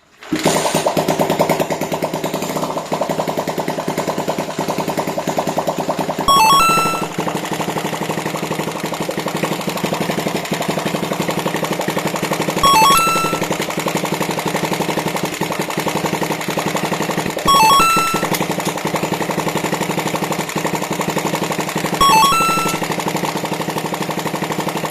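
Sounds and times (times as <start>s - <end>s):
electronic chime: 6.3s - 7.3s, 12.6s - 13.6s, 17.4s - 18.6s, 22.0s - 23.0s.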